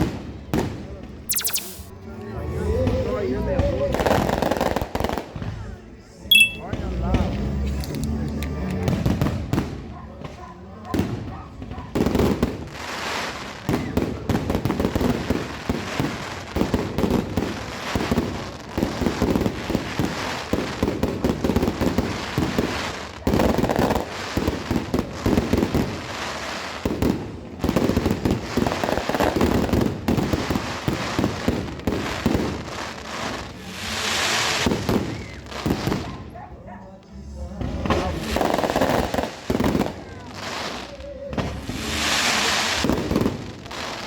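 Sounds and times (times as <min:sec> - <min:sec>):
firecrackers going off: 0:01.3 - 0:01.9, 0:12.0 - 0:36.1, 0:38.2 - 0:44.0.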